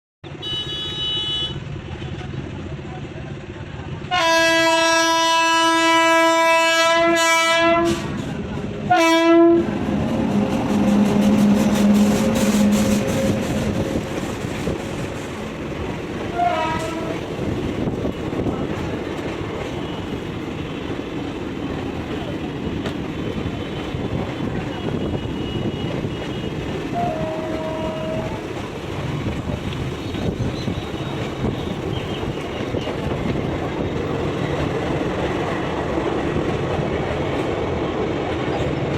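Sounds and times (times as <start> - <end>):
train horn blasts: 0.3 - 1.6, 4.1 - 8.2, 8.9 - 14.7, 16.3 - 17.4, 23.8 - 28.6
train rumble: 0.3 - 38.9.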